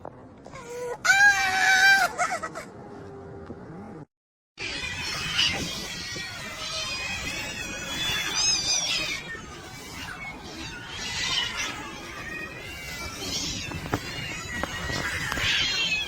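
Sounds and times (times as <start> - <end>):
small animal squealing: 4.6 - 16.0.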